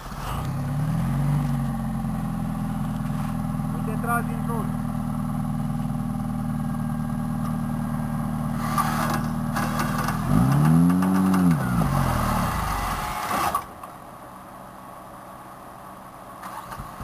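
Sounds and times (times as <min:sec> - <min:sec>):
off-road vehicle engine revving: 0:00.0 - 0:13.7
clatter: 0:08.6 - 0:14.0.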